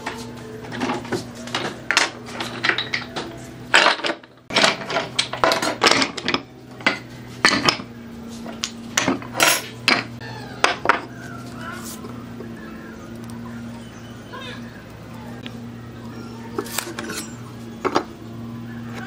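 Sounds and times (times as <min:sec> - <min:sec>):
hand tools knocking and scraping: 0:00.0 - 0:11.2
steady low hum: 0:00.0 - 0:19.0.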